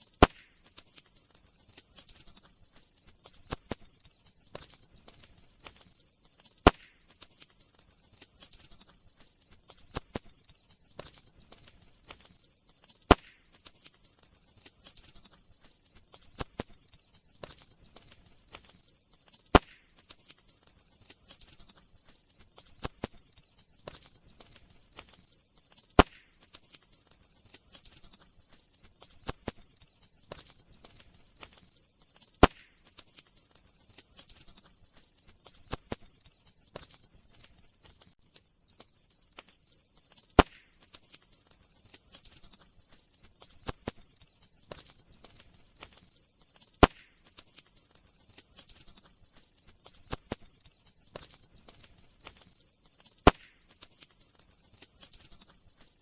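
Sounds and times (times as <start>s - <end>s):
campfire crackling: 0.0s - 56.0s
faint steady hiss: 0.0s - 56.0s
loud sharp fire pops: 0.1s - 1.0s, 6.6s - 7.4s, 13.1s - 13.9s, 19.5s - 20.3s, 26.0s - 26.7s, 32.4s - 33.1s, 40.4s - 40.9s, 46.8s - 47.2s, 53.2s - 53.8s.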